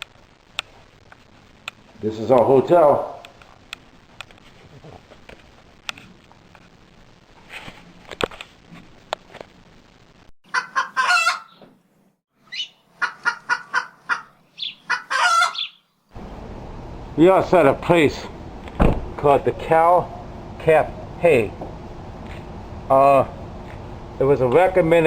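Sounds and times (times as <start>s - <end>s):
fowl clucking: 10.5s - 11.6s, 12.5s - 15.8s
rooster crowing: 10.6s - 11.5s, 14.9s - 15.7s.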